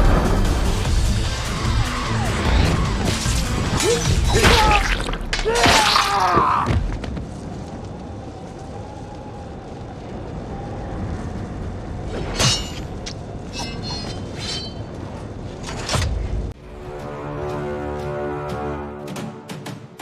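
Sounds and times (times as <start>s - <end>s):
film music: 0.0s - 5.4s, 16.6s - 20.0s
heavy crashes and booms: 0.0s - 6.0s.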